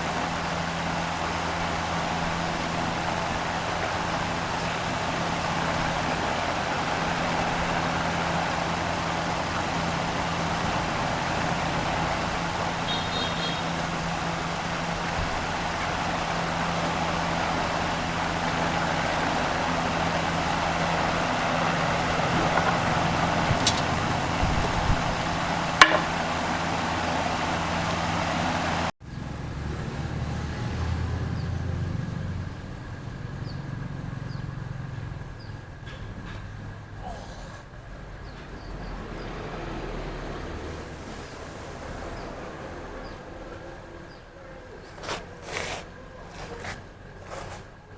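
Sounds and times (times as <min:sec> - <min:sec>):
machine motor humming: 0:00.0 - 0:28.9
quieter machine hum: 0:00.0 - 0:28.9.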